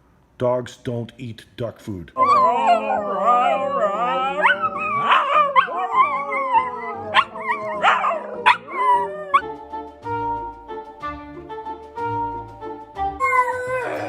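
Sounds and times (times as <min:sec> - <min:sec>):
dog whining and howling: 0:02.2 - 0:09.5, 0:13.2 - 0:14.0
dog yelping: 0:02.2 - 0:09.5.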